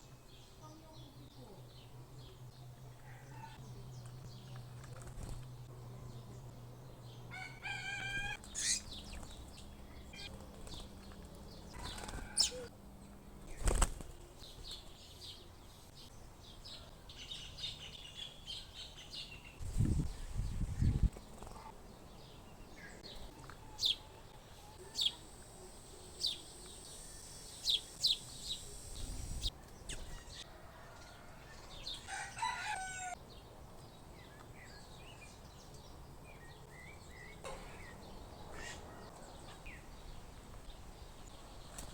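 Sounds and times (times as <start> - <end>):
birds chirping: 0.0 - 12.7, 14.4 - 30.5
bird wings fluttering: 4.8 - 5.5, 10.3 - 12.4, 13.4 - 14.3.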